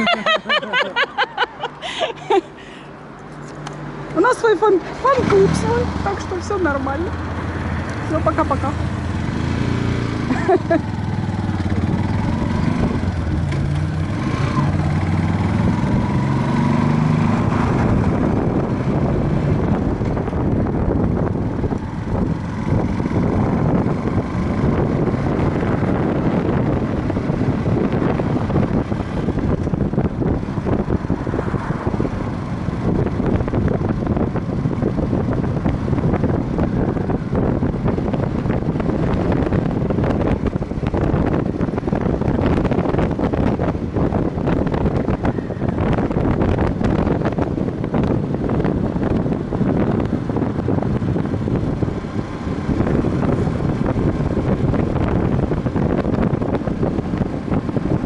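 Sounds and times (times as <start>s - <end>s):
wind noise on microphone: 3.4s - 58.0s
motorcycle engine accelerating: 4.1s - 58.0s.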